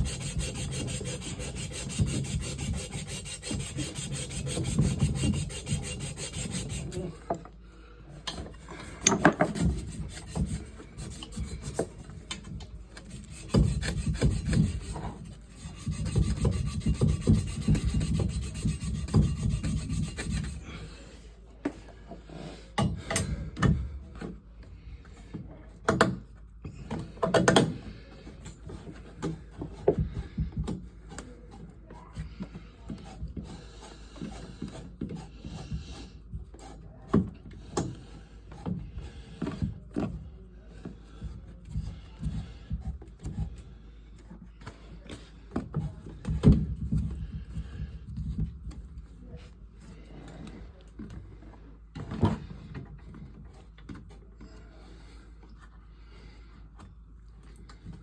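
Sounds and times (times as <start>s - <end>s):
rubbing and scraping strokes: 0.0s - 7.3s, 8.4s - 21.1s
tools knocking and clattering: 8.2s - 20.5s.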